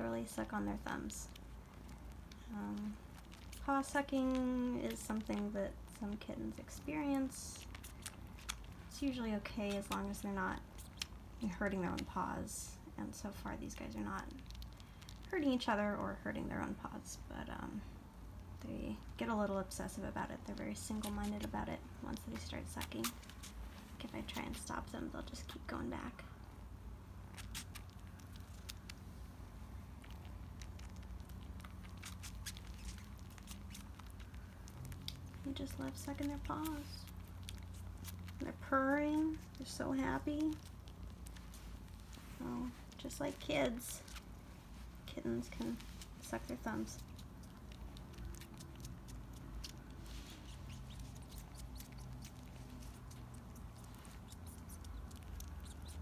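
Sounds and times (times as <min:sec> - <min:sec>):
kitten purring: 0:00.0 - 0:15.8, 0:27.3 - 0:56.0
kittens sucking on paws: 0:00.0 - 0:16.0, 0:17.9 - 0:56.0.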